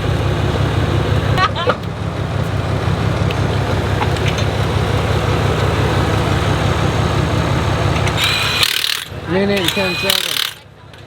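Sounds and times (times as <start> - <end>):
vehicle engine idling: 0.0 - 11.0
impact wrench whirring: 8.0 - 10.6.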